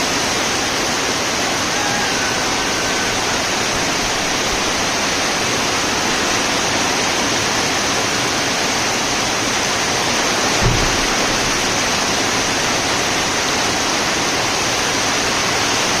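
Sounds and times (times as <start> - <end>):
heavy rain pouring: 0.0 - 16.0
brief low thump: 10.6 - 11.7.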